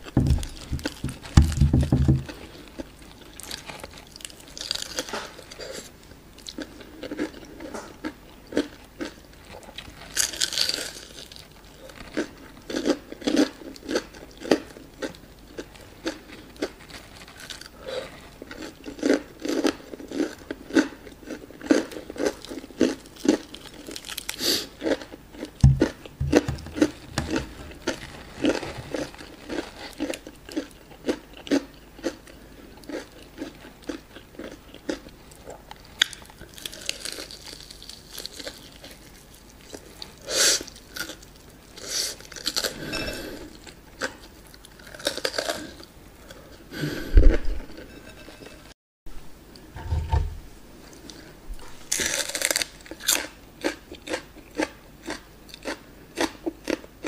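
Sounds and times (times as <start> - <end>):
low thump: 0.0 - 2.3, 25.6 - 27.5
chewing crunchy fried chicken: 2.1 - 48.3, 51.9 - 57.0
crunchy bite: 51.9 - 56.8.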